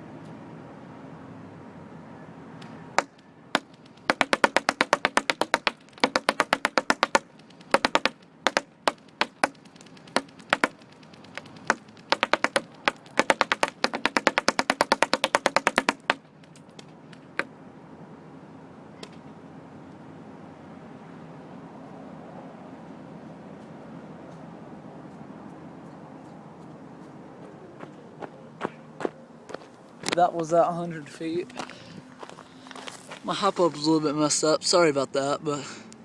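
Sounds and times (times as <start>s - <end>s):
pellets hitting cardboard box: 3.0s - 16.2s.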